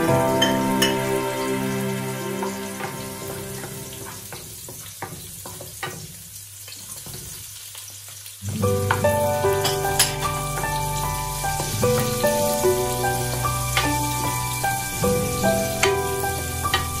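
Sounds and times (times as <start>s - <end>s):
background music: 0.0s - 4.3s, 8.5s - 17.0s
garlic and onion sizzling in oil: 0.0s - 17.0s.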